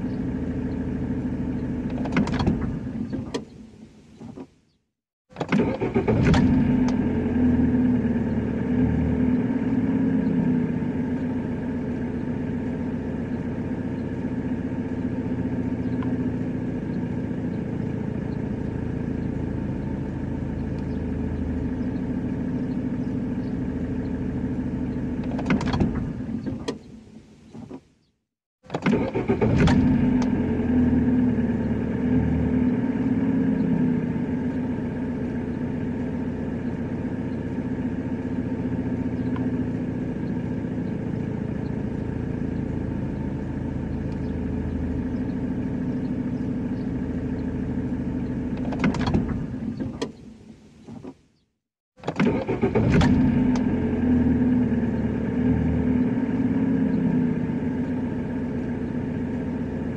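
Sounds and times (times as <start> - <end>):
car engine running: 0.0 - 3.5, 5.4 - 28.1, 28.7 - 51.2, 52.1 - 59.9.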